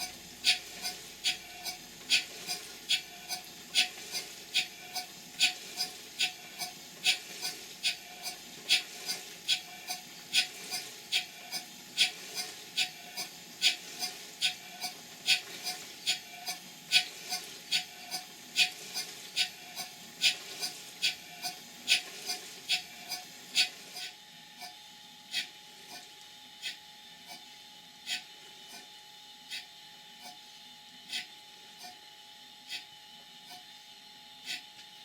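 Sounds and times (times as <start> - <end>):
steam pump working: 0.0 - 24.1.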